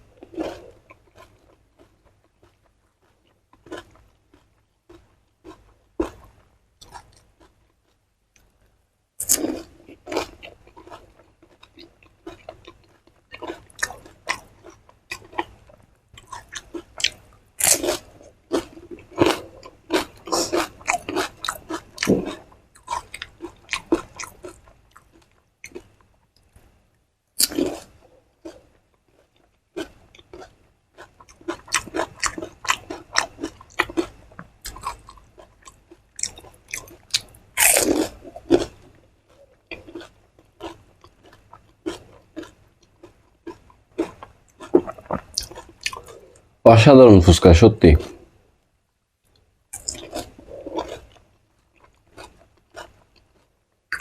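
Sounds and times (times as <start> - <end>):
crunching and chewing crisp food: 0.0 - 48.3, 49.2 - 54.0.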